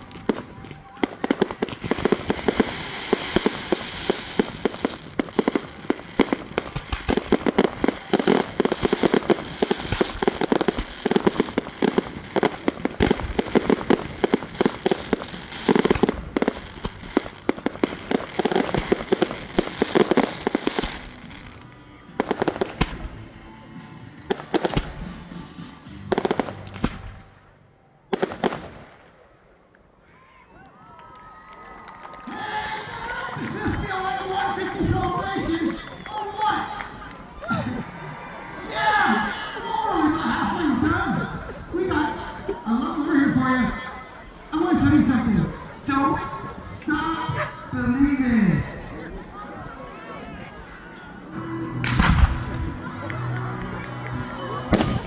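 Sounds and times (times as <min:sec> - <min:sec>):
fireworks bangs: 0:00.0 - 0:23.2, 0:26.1 - 0:27.4, 0:28.1 - 0:29.2, 0:51.8 - 0:52.8, 0:54.7 - 0:55.0.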